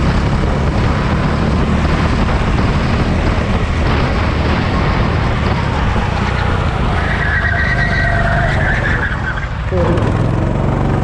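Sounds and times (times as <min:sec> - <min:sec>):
vehicle engine running: 0:00.0 - 0:07.1, 0:09.6 - 0:11.0
tyre squeal: 0:06.3 - 0:10.0.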